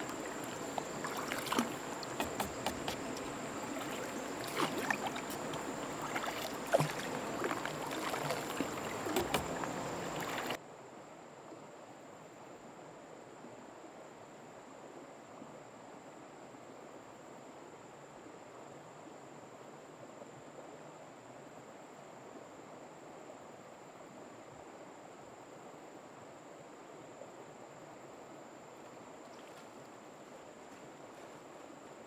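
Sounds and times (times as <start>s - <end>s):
small knocks and clicks: 0.0s - 10.6s
water splashing and lapping: 0.0s - 10.6s, 29.2s - 30.0s.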